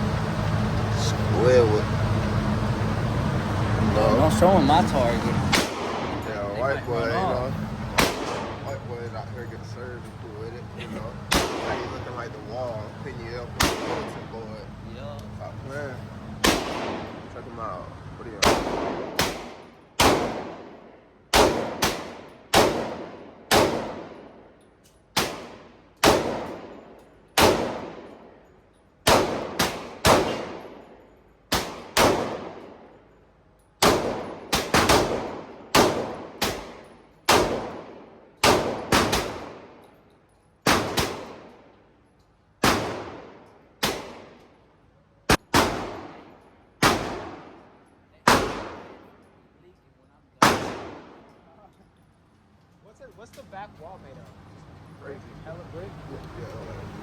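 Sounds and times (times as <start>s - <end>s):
gunshots with ringing echo: 5.4s - 6.7s, 7.9s - 8.8s, 11.3s - 12.2s, 13.6s - 14.4s, 16.4s - 17.3s, 18.4s - 24.5s, 25.1s - 33.0s, 33.8s - 39.8s, 40.6s - 41.8s, 42.6s - 44.4s, 45.3s - 49.2s, 50.4s - 51.3s.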